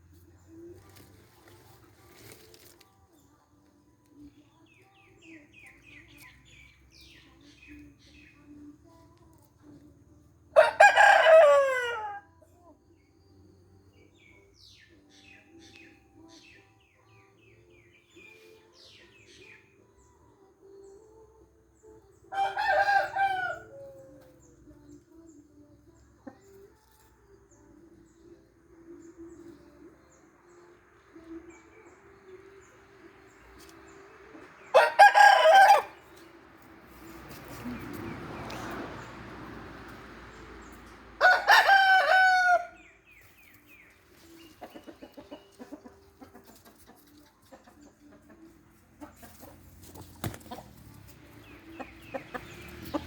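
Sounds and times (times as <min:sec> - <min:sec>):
rooster crowing: 0:10.6 - 0:12.2, 0:22.4 - 0:23.8, 0:34.7 - 0:36.0, 0:41.2 - 0:42.8.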